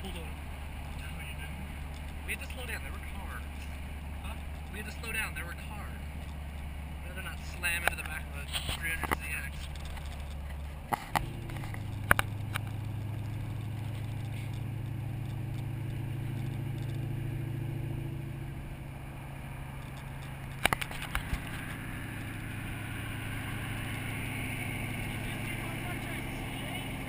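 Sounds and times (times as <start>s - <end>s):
car engine running: 0.0s - 27.0s
sharp clicks or knocks: 19.8s - 21.8s.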